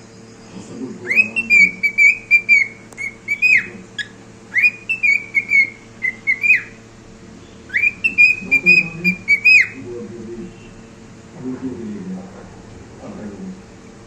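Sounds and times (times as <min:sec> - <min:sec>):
cockatiel whistling: 0:01.0 - 0:06.8, 0:07.7 - 0:09.8.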